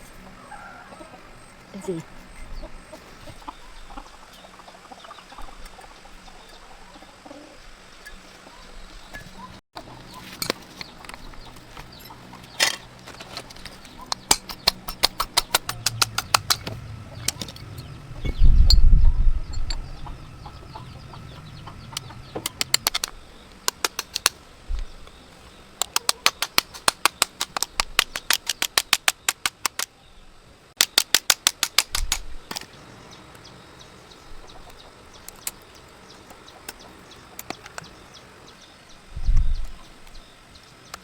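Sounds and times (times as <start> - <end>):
quick sharp clicks: 14.1 - 17.9, 22.0 - 24.4, 25.8 - 29.9, 30.8 - 32.7.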